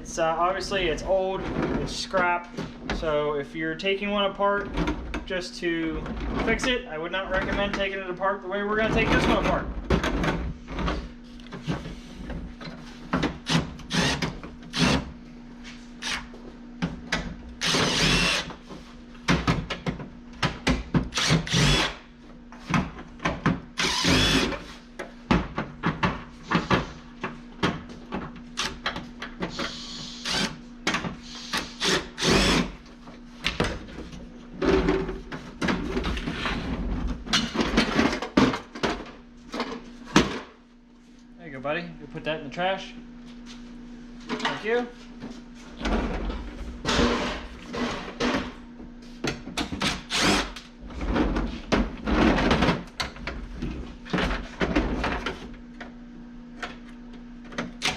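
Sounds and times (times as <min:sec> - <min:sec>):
steady low hum: 0:00.0 - 0:57.9
knocks and clatter of parts: 0:08.8 - 0:14.6, 0:33.4 - 0:40.6, 0:49.2 - 0:56.0
power tool bursts: 0:13.4 - 0:15.1, 0:17.6 - 0:18.5, 0:21.1 - 0:22.0, 0:23.8 - 0:24.6, 0:29.5 - 0:30.6, 0:31.5 - 0:32.8, 0:49.9 - 0:50.6.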